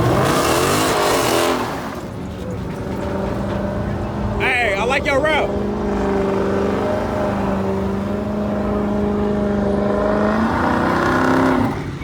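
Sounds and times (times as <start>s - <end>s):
car engine at high revs: 0.0s - 2.1s, 5.3s - 12.0s.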